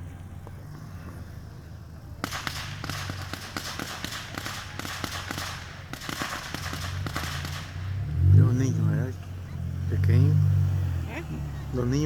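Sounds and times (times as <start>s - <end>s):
fireworks crackling: 0.0s - 8.1s.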